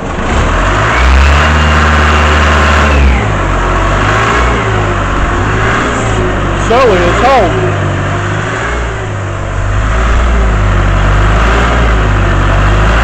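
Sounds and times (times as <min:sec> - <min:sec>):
air compressor engine running: 0:01.4 - 0:13.0.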